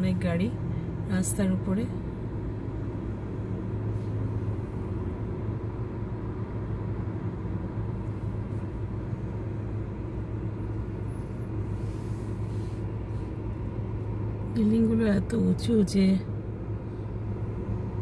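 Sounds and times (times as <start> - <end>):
car cabin low hum: 0.0 - 18.0.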